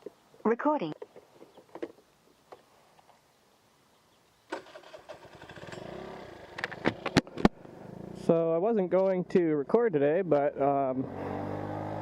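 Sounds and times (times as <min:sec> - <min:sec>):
vehicle engine starting and running: 0:04.5 - 0:08.4, 0:10.8 - 0:12.0.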